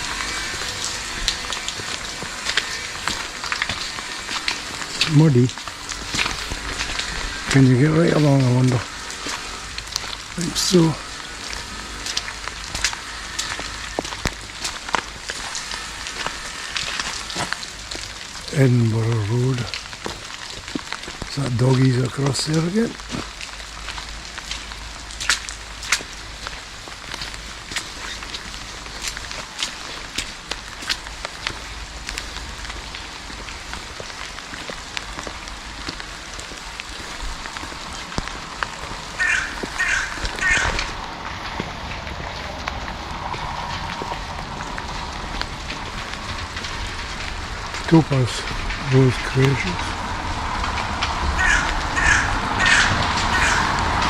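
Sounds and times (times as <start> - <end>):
raindrops ticking: 0.0 - 54.0
steady rain hiss: 0.0 - 54.0
harsh crow caws: 39.0 - 41.0, 51.2 - 54.0.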